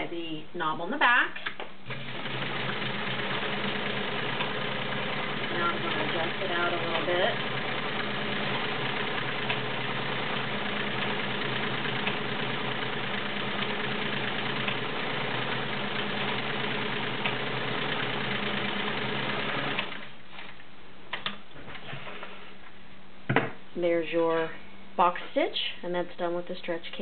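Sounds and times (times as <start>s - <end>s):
sewing machine motor running: 1.9s - 20.1s.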